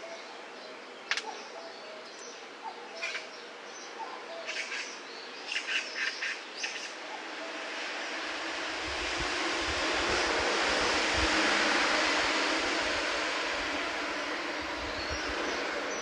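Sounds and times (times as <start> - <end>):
birds chirping: 0.0 - 16.0
rush of noise with low rumble: 6.6 - 16.0.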